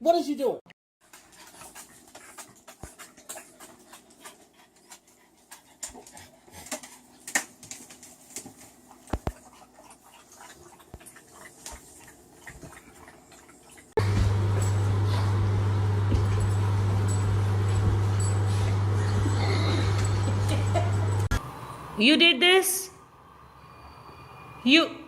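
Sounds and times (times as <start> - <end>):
dog panting: 1.0 - 7.3, 8.1 - 14.0.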